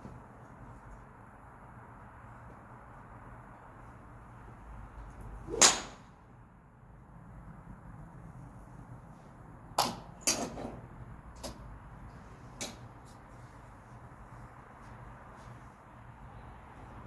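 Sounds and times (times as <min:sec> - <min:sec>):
golf club striking ball: 0:05.5 - 0:06.1.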